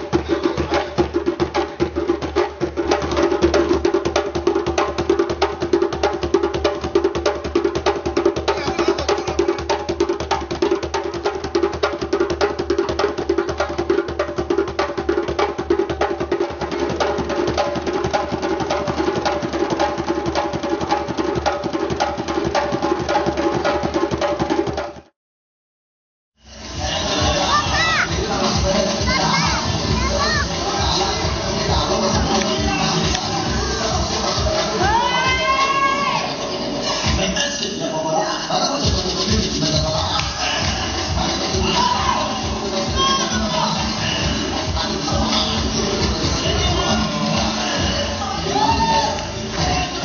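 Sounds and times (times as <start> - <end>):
fast hand drumming: 0.0 - 25.0.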